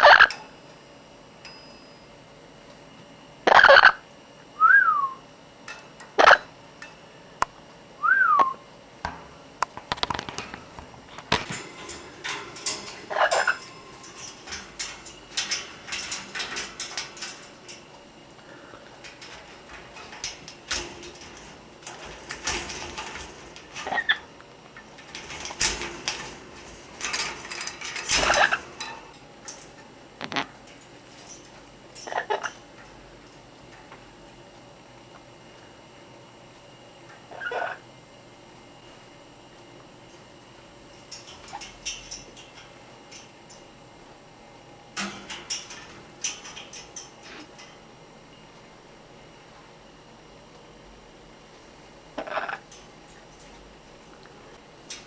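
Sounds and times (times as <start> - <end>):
parrot whistles: 4.6 - 5.2, 8.0 - 8.6.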